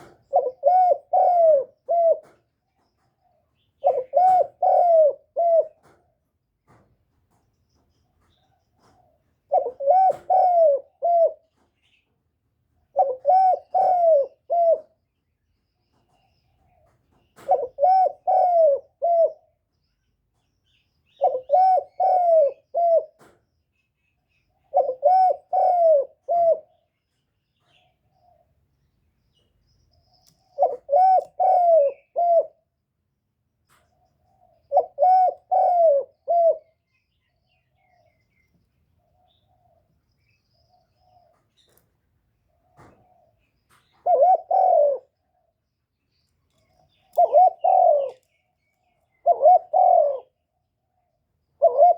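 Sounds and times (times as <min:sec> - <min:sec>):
dove cooing: 0:00.0 - 0:02.5, 0:03.2 - 0:06.0, 0:08.8 - 0:11.7, 0:12.9 - 0:15.0, 0:16.6 - 0:19.6, 0:21.1 - 0:23.4, 0:24.6 - 0:26.9, 0:30.4 - 0:32.8, 0:34.1 - 0:37.0, 0:42.5 - 0:45.5, 0:46.6 - 0:48.3, 0:49.1 - 0:50.7, 0:51.6 - 0:51.9.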